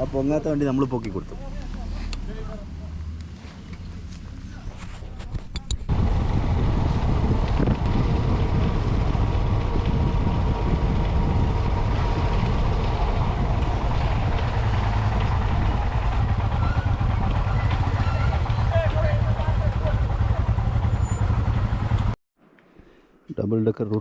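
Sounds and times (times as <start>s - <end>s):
motorcycle engine rumble: 0.0s - 22.2s
wind rushing over microphone: 4.6s - 18.4s.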